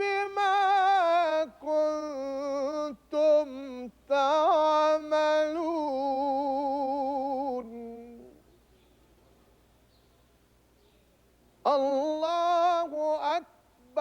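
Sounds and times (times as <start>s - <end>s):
person chanting: 0.0s - 8.4s, 11.7s - 14.0s.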